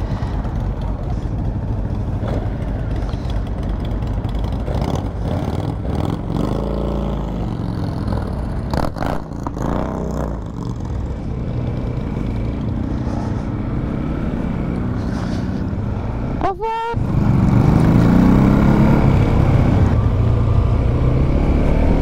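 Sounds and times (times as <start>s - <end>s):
motorcycle engine running: 0.0s - 16.4s.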